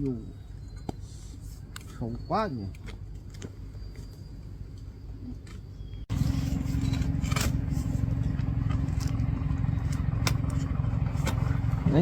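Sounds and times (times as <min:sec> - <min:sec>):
vehicle engine droning: 0:05.9 - 0:12.0.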